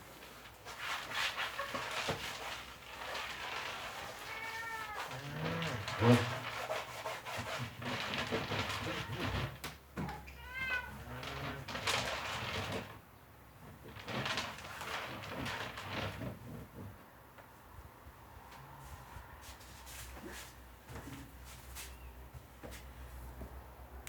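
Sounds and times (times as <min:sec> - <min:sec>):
rustling and knocking: 0:00.2 - 0:13.0, 0:13.6 - 0:17.5, 0:19.4 - 0:23.6
cat meowing: 0:04.0 - 0:05.4, 0:10.0 - 0:11.1.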